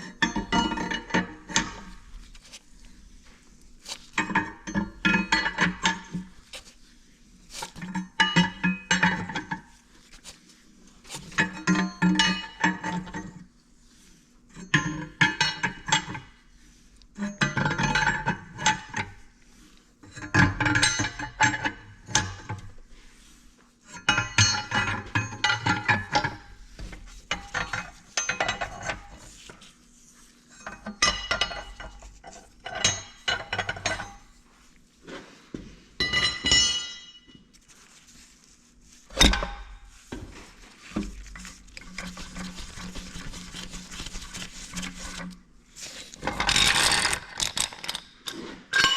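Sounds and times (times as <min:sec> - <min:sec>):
metal tools clinking and clanking: 0:36.0 - 0:37.4, 0:46.1 - 0:48.9.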